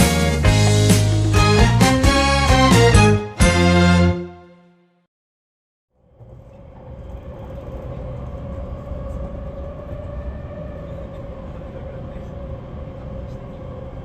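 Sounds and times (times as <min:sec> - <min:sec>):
train rumbling: 0:06.0 - 0:14.0.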